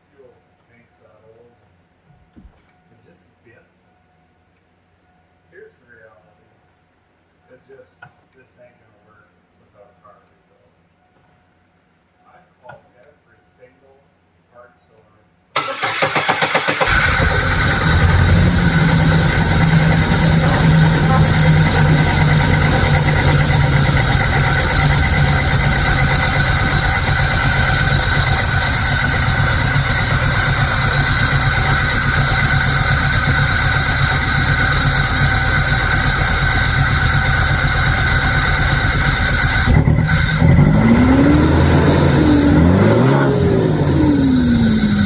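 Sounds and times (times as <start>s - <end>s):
pickup engine revving: 15.6s - 45.0s.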